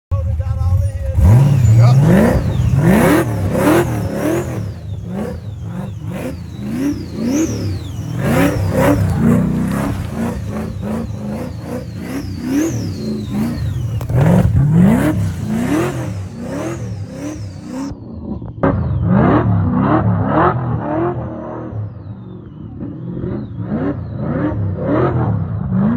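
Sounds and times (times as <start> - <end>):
car engine revving: 0.2 - 25.9
supercharger whine: 0.2 - 25.9.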